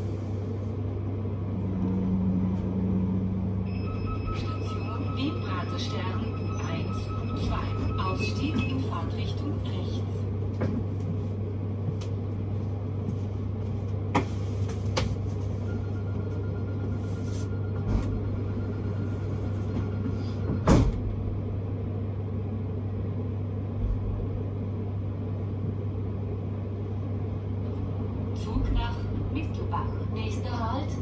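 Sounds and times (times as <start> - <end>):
train carriage hum and rumble: 0.0 - 31.0.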